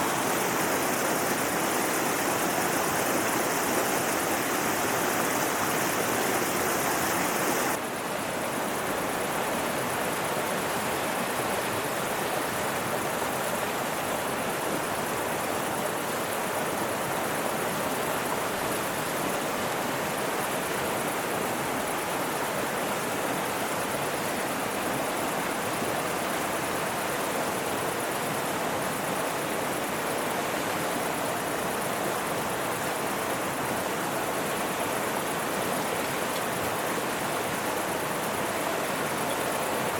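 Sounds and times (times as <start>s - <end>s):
mountain river flowing: 0.0s - 7.8s, 24.2s - 39.9s.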